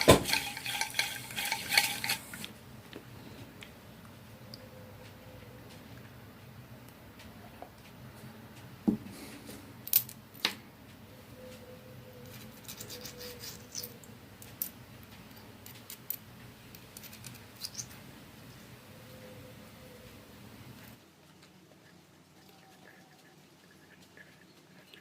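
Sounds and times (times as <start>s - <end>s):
small metal clicks and knocks: 13.7s - 18.0s.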